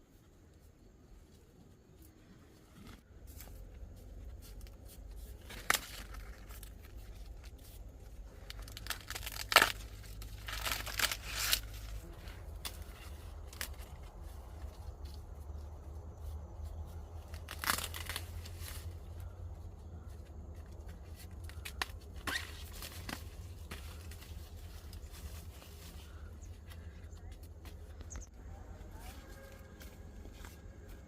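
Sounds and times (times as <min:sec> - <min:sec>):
low steady rumble: 0:00.0 - 0:31.0
corn husks rustling and tearing: 0:00.5 - 0:31.0
corn ears snapping: 0:04.4 - 0:15.7, 0:16.9 - 0:27.4.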